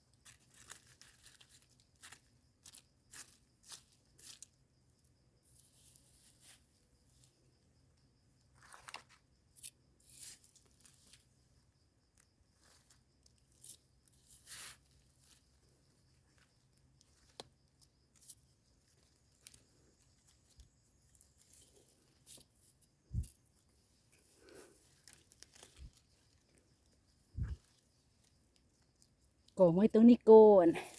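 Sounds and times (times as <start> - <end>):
rustles and snaps in dry leaves: 0.2 - 4.5, 8.6 - 11.3, 17.0 - 23.4, 24.8 - 27.0.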